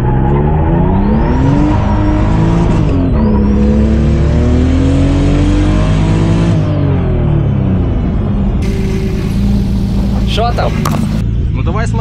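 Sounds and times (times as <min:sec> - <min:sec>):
car engine at full throttle: 0:00.0 - 0:12.0.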